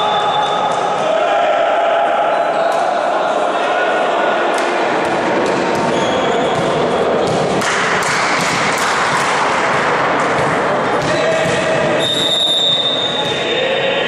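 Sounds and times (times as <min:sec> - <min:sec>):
crowd noise in sports hall: 0:00.0 - 0:14.0
shoes squeaking on court: 0:05.8 - 0:07.5.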